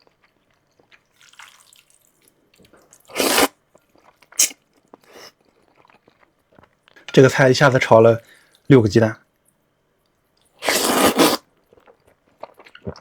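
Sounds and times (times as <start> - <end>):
wet mouth eating noises: 2.6 - 6.7, 10.6 - 13.0
noodle slurping: 3.1 - 3.5, 4.4 - 5.3, 10.6 - 11.4.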